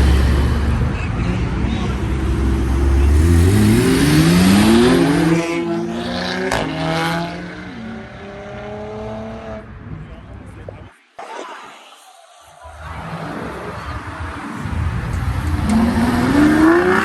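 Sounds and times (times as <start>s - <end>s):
car accelerating hard: 0.0s - 9.6s, 14.6s - 17.0s.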